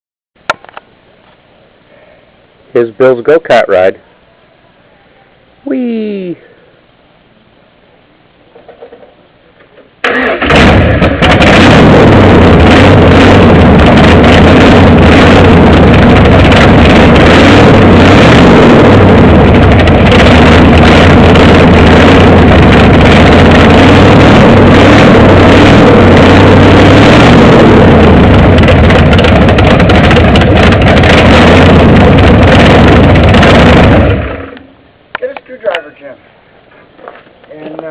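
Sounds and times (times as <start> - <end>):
go-kart engine running: 10.0 - 34.6.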